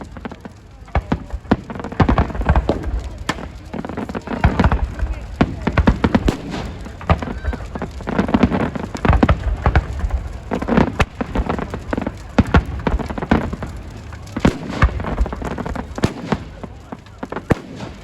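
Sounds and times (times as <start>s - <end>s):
fireworks cracking and banging: 0.0s - 18.0s
murmur of crowd voices: 0.0s - 18.0s.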